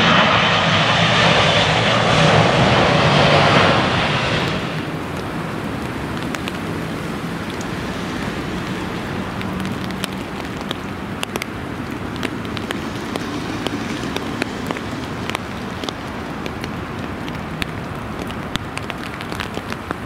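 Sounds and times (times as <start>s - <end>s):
steady rain: 0.0s - 20.0s
sharp raindrop ticks: 4.3s - 20.0s.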